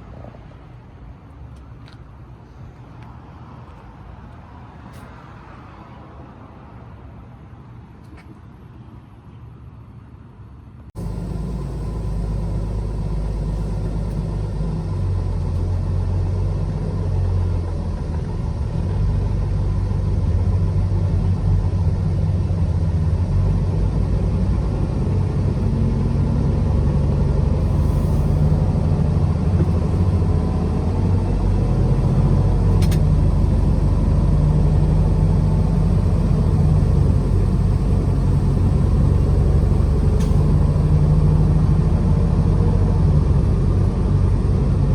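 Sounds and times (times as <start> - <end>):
road rumble: 0.0 - 44.9
truck engine: 11.0 - 44.9
sharp click: 32.8 - 33.1.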